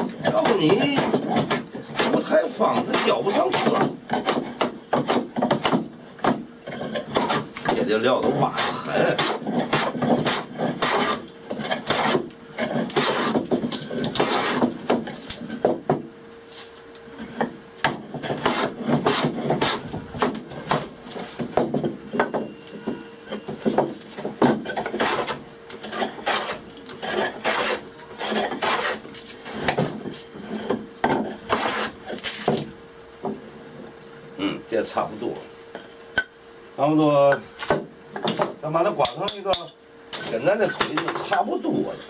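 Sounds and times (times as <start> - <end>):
hand plane shaving wood: 0.0 - 14.9, 18.0 - 21.4, 24.4 - 29.8, 30.4 - 32.5.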